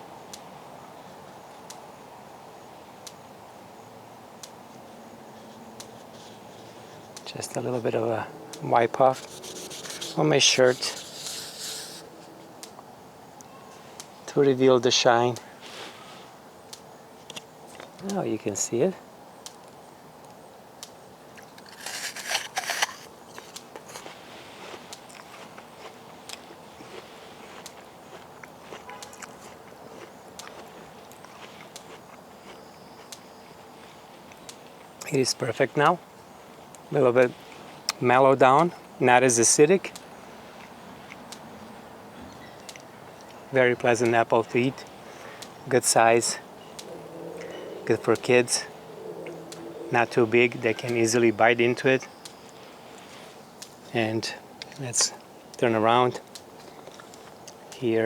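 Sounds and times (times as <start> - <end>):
faint background noise: 0.0 - 58.0
chewing with crackly clicks: 5.4 - 7.3, 10.8 - 14.1, 16.7 - 18.2, 19.4 - 35.1, 39.9 - 41.6, 42.6 - 43.4, 45.1 - 45.6, 46.6 - 49.8, 54.6 - 55.6, 56.2 - 57.8
apple crunch: 8.6 - 12.1, 21.4 - 33.5.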